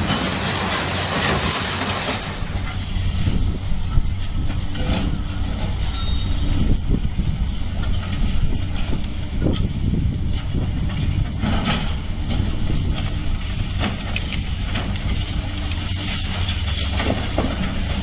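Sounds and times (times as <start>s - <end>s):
knocks and clatter: 0.0s - 2.6s, 8.8s - 15.2s, 16.2s - 18.0s
diesel engine running: 0.0s - 18.0s.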